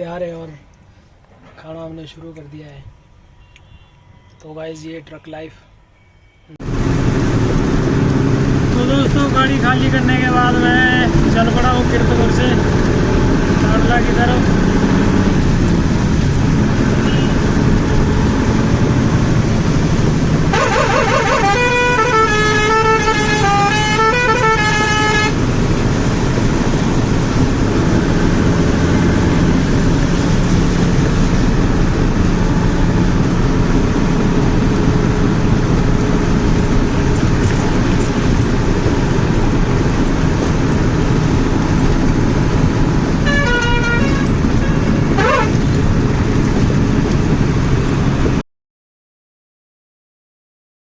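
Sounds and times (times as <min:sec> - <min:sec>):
truck engine and road rumble: 0:00.0 - 0:03.7, 0:06.6 - 0:48.4
vehicle horn: 0:03.1 - 0:04.4, 0:16.9 - 0:17.6, 0:20.5 - 0:25.4, 0:43.2 - 0:45.8.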